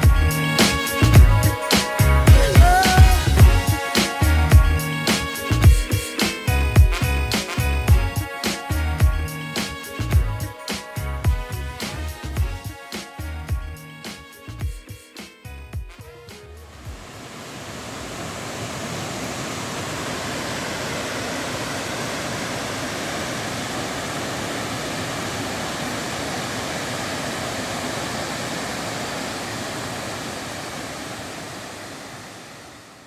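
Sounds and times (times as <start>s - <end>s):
waterfall rushing: 1.8s - 4.2s, 16.6s - 33.0s.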